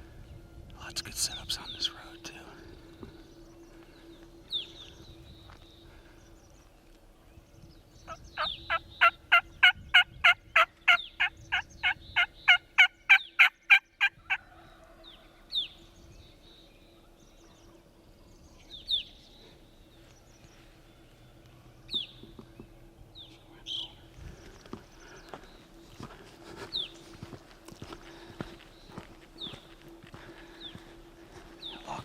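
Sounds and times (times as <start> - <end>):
turkey yelps: 8.4 - 14.5.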